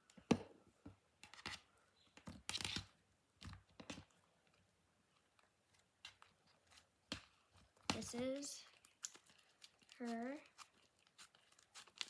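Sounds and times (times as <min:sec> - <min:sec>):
slime squelching: 0:05.1 - 0:12.0.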